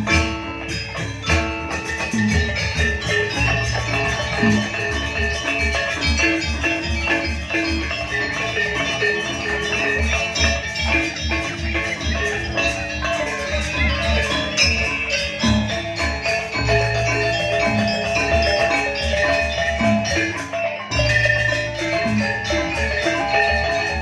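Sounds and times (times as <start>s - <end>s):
metallophones ringing melody: 0.0s - 24.0s.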